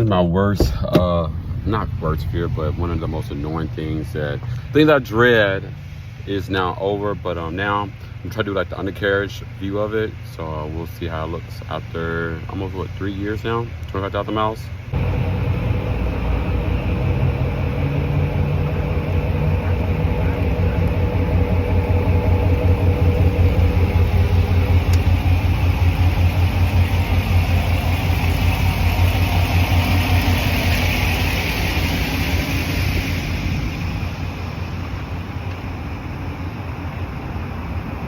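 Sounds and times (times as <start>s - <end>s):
low vehicle rumble: 0.0s - 38.0s
hiss: 23.3s - 35.5s.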